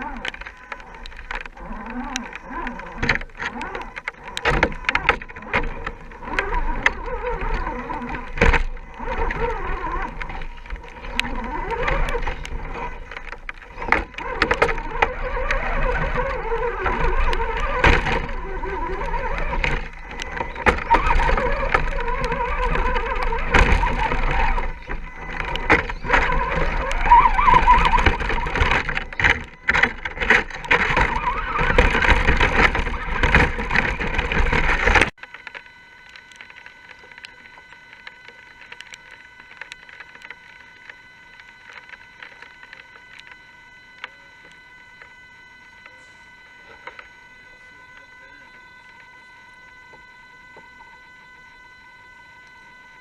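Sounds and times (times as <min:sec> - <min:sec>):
electric motor and gears whining: 0:00.0 - 0:53.0.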